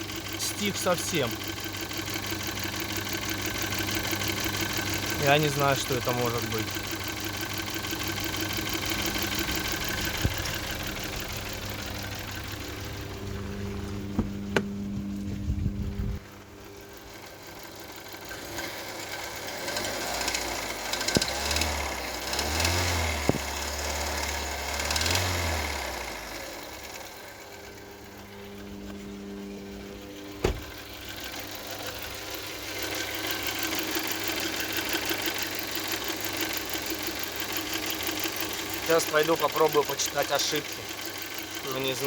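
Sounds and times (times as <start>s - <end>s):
fast ticking engine knock: 0.0s - 12.7s, 32.0s - 42.0s
car engine running: 0.0s - 42.0s.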